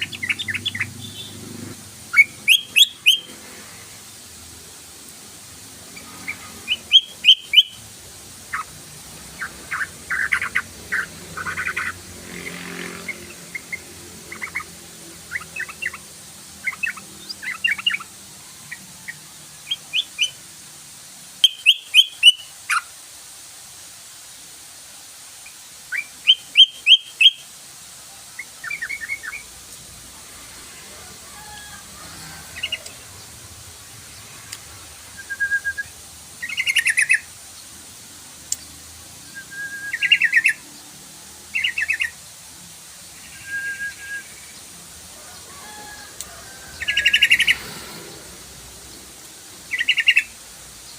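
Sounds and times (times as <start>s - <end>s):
bird chirping in bubbly clusters: 0.0s - 1.5s, 2.1s - 3.4s, 6.0s - 12.0s, 13.1s - 20.5s, 21.4s - 22.9s, 25.9s - 27.5s, 28.4s - 29.6s, 35.1s - 37.8s, 38.6s - 40.7s, 41.5s - 42.2s, 49.7s - 50.9s.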